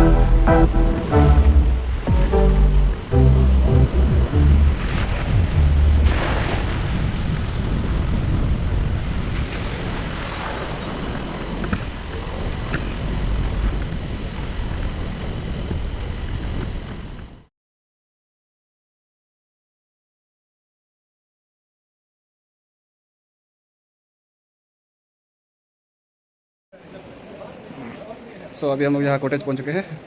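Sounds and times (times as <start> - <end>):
music bass notes: 0.0 - 6.2
vehicle road and wind noise: 0.0 - 17.5.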